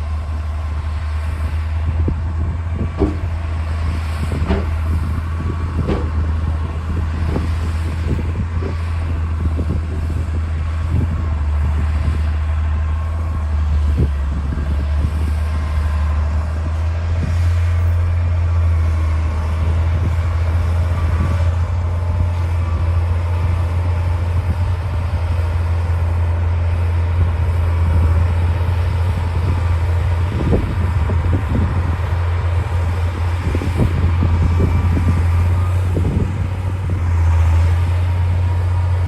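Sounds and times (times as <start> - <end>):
bulldozer diesel engine droning: 0.0 - 39.0
metal clanks and knocks: 2.9 - 3.4, 4.4 - 4.8.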